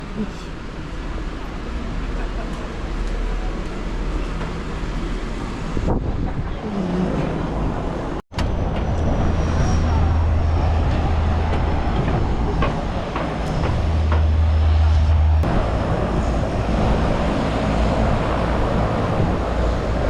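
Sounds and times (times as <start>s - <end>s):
propeller engines droning: 0.0s - 20.0s.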